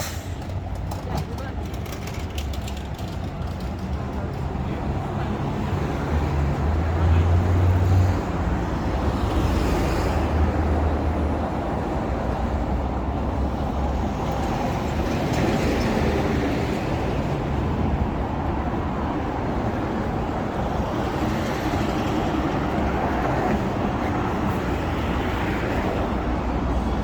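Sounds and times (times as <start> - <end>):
road noise: 0.0 - 27.0
motor vehicle engine hum: 0.2 - 5.7.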